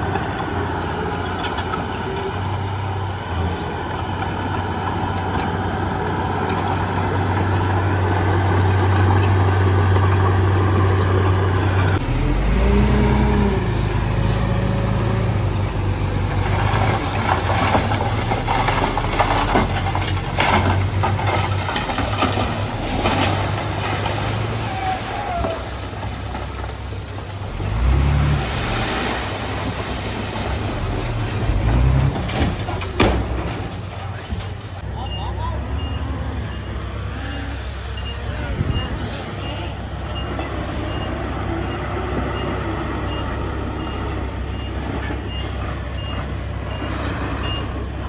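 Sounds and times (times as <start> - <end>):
diesel machinery engine running: 0.0 - 48.0
metal knocks and clanks: 31.5 - 34.8.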